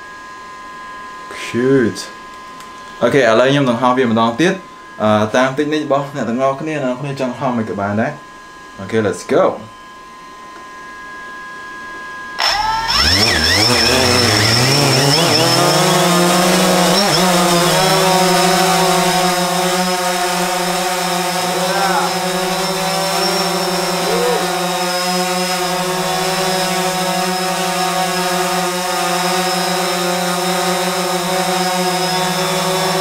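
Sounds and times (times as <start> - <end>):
drone motors and propellers whining: 12.4 - 33.0.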